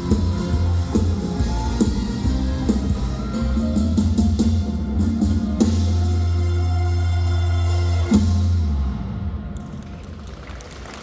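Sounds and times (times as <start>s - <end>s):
held chord and bass ringing: 0.0s - 9.4s.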